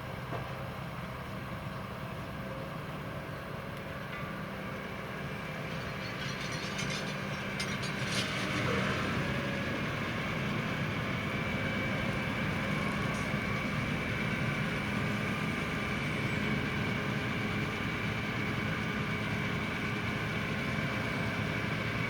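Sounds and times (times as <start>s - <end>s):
tractor engine running: 0.0s - 22.0s
harvester parts clattering: 5.8s - 8.8s.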